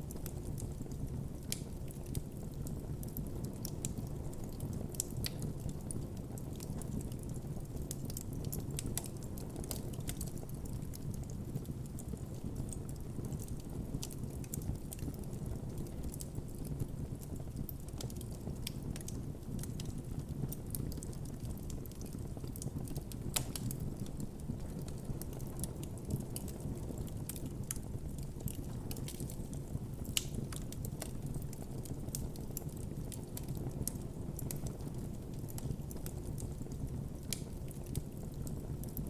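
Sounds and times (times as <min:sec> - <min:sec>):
campfire crackling and popping: 0:00.0 - 0:39.0
low rush of flames: 0:10.8 - 0:39.0.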